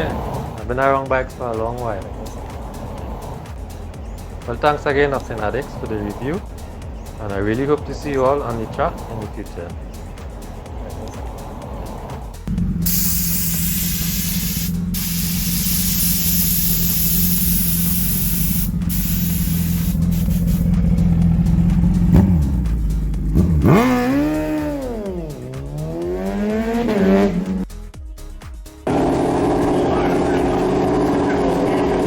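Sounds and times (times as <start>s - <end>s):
motorcycle engine revving: 0.0s - 27.7s, 28.9s - 32.0s.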